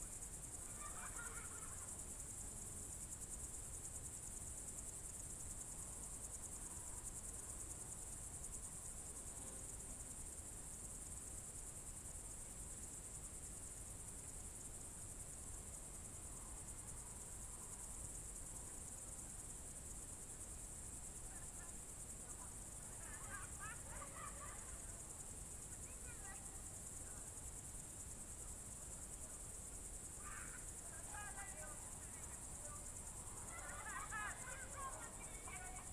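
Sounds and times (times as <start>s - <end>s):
crickets chirring: 0.0s - 35.9s.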